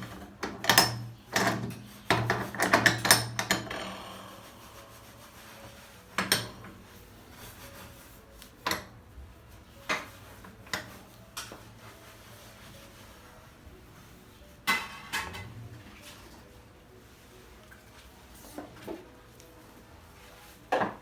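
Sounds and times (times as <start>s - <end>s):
dishes and utensils clinking: 0.0s - 4.9s, 5.7s - 7.0s, 14.6s - 16.6s
soft rubbing: 3.9s - 8.6s, 9.3s - 14.6s, 15.7s - 20.7s.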